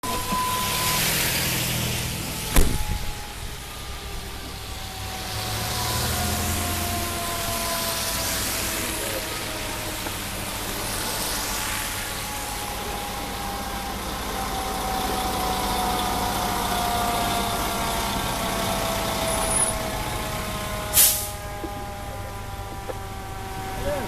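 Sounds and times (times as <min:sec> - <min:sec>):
fire engine motor running: 0:00.0 - 0:24.0
short sharp hiss: 0:21.0 - 0:21.4.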